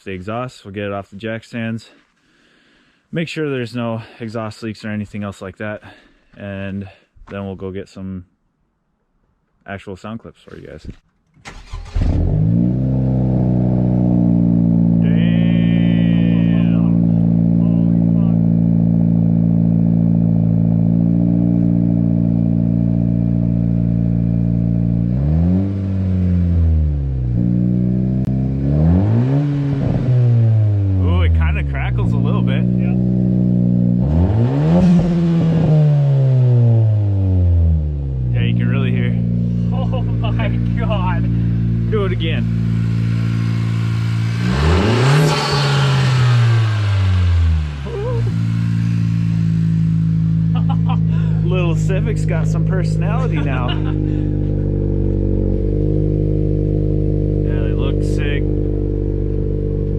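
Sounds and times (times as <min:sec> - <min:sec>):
engine revving: 0:11.5 - 0:59.9
car engine idling: 0:13.2 - 0:25.0, 0:36.6 - 0:59.9.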